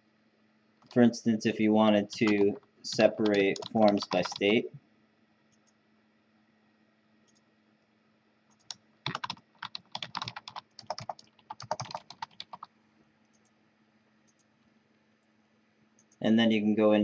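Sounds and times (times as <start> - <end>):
faint steady hum: 0.0 - 17.0
computer keyboard typing: 2.1 - 4.6, 8.5 - 12.7.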